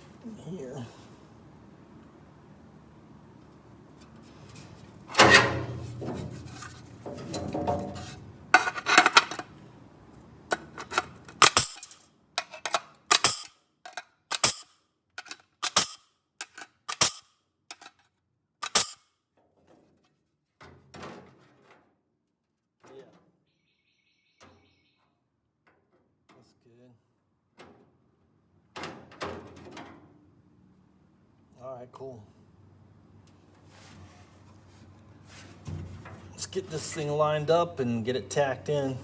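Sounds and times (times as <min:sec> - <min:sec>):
tools clinking and scraping on metal: 0:05.1 - 0:09.6, 0:10.5 - 0:18.0, 0:18.6 - 0:19.0.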